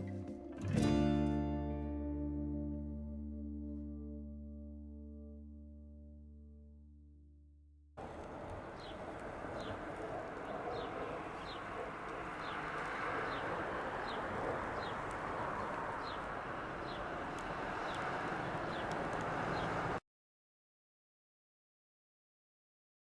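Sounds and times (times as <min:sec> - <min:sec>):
bird chirping: 0:08.0 - 0:19.8.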